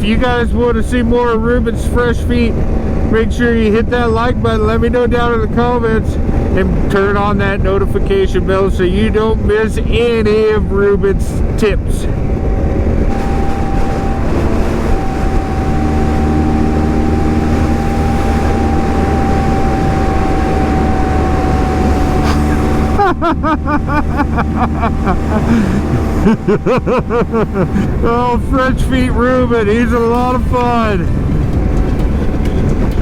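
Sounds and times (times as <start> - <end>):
motorcycle engine rumbling: 0.0 - 33.0
person speaking: 23.4 - 31.2.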